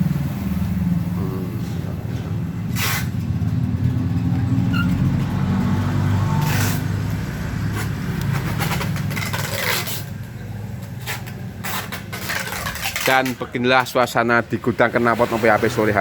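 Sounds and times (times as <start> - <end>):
motorcycle engine running: 0.0 - 9.2
short hissing sounds: 2.7 - 3.2.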